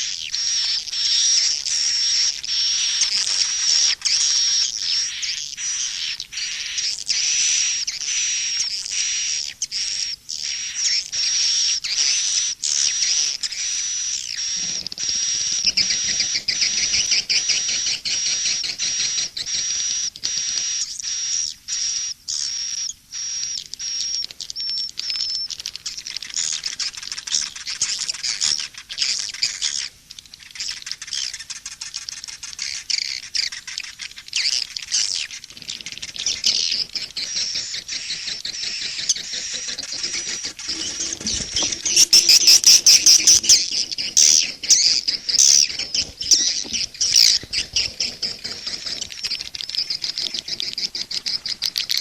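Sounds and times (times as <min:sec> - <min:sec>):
swiftlets twittering and chirping: 0:00.0 - 0:52.0.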